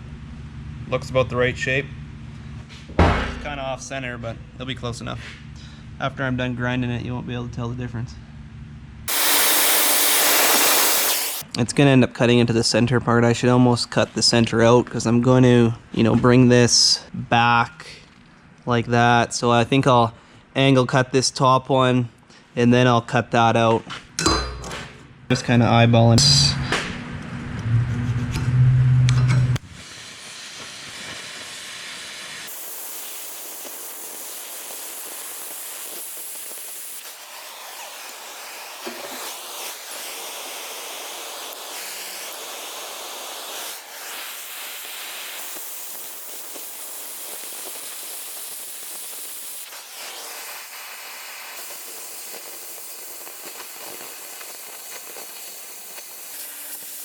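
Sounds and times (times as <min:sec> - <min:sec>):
loud sound: 0:09.1 - 0:11.4, 0:25.4 - 0:29.7
cutting torch hissing: 0:09.1 - 0:11.5, 0:29.6 - 0:57.0.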